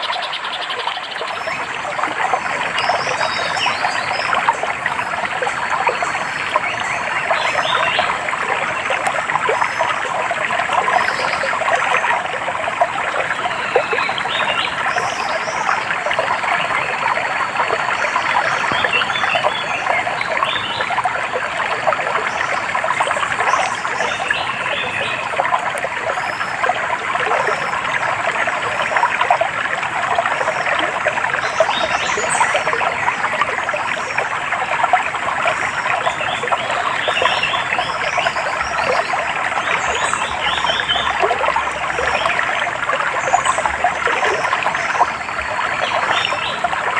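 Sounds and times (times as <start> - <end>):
water trickling and babbling: 0.0 - 46.9.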